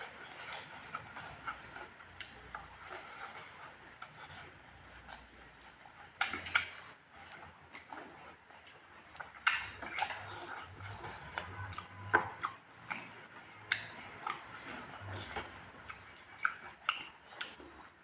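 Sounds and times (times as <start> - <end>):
person chewing food: 0.0 - 18.0
wet mouth smacks: 6.1 - 6.8.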